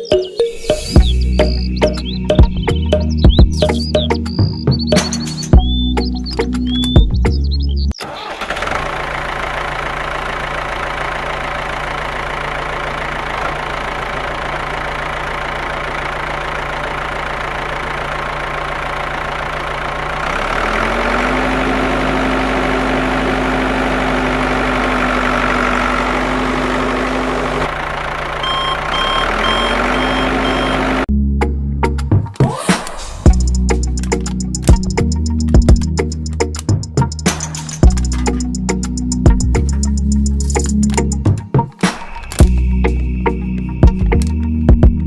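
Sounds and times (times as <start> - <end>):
higher-pitched motor hum: 19.9 - 31.1
short electronic beeps: 28.4 - 31.0.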